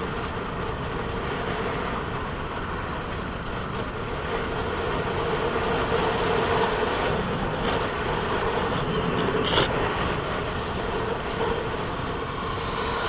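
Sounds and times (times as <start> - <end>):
faint steady hum: 0.0 - 13.0
vehicle road and engine noise: 0.0 - 13.0
short hisses: 6.7 - 9.7.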